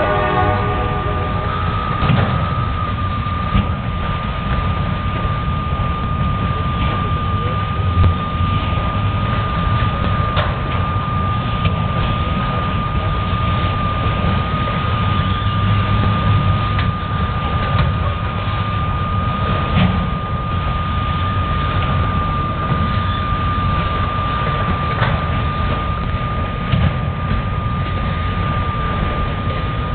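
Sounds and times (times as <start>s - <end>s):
steady high-pitched tone: 0.0s - 15.8s
freight train rumbling past: 0.0s - 29.9s
sharp train clanks: 0.0s - 29.9s.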